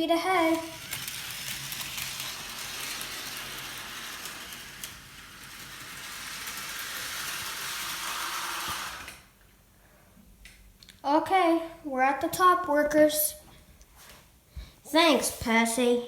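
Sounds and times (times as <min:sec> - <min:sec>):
model train whirring: 0:00.2 - 0:09.3.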